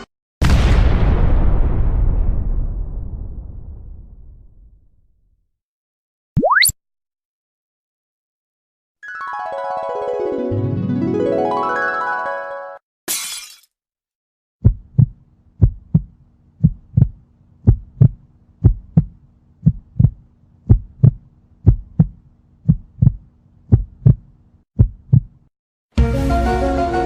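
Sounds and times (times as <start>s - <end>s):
music: 9.0s - 12.8s, 25.9s - 27.0s
heartbeat thumps: 14.6s - 25.4s.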